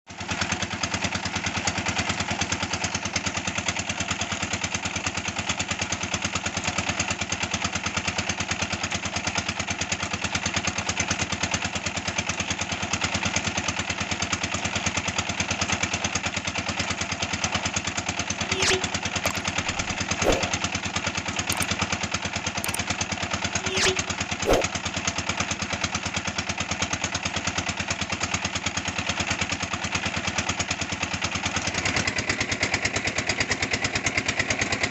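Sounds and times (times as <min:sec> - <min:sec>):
brick machine running: 0:18.5 - 0:20.6.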